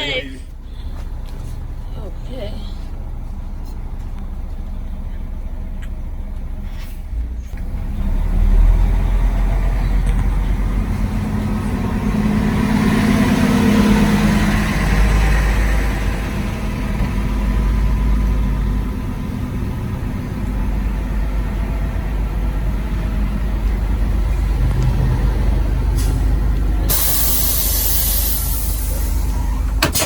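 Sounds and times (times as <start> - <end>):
bus engine rumbling: 0.0 - 30.0
air brakes hissing: 25.9 - 30.0.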